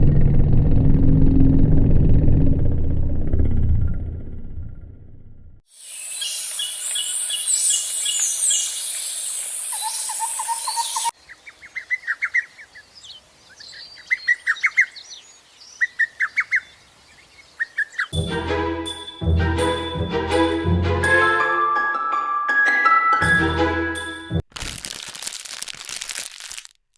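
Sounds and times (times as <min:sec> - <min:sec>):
rapid bird trills: 0:05.8 - 0:18.2
birds chirping and calling: 0:05.9 - 0:18.2.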